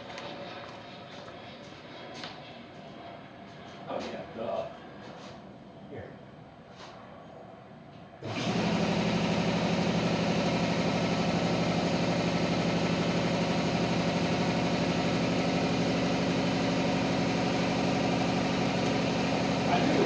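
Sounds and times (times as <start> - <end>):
air compressor pulsing: 8.2 - 20.0.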